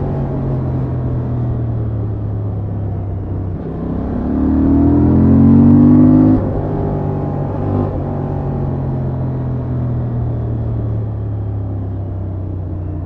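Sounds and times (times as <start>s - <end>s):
motorcycle engine revving: 0.0s - 9.7s.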